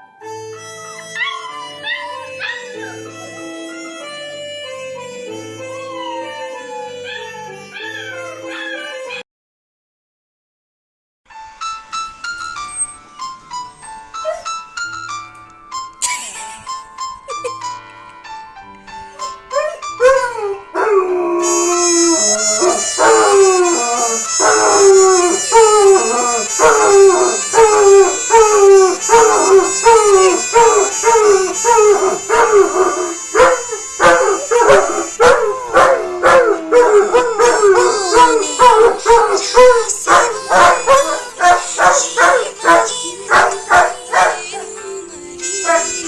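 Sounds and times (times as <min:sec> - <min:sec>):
music: 0:00.0 - 0:09.2, 0:11.3 - 0:46.0
dog howling: 0:01.1 - 0:04.2, 0:05.7 - 0:09.2, 0:19.5 - 0:46.0.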